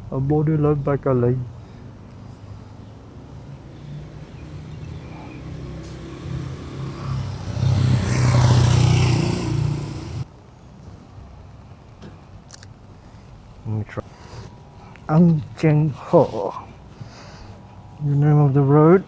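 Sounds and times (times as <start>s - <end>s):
road noise: 0.0s - 19.0s
vehicle engine approaching: 1.9s - 10.3s.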